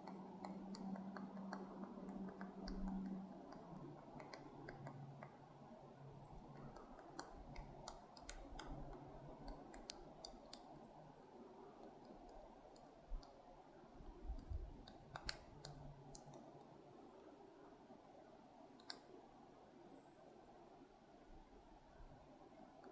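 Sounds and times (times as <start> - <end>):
woodpecker pecking on bark: 0.0 - 5.4, 6.2 - 10.8.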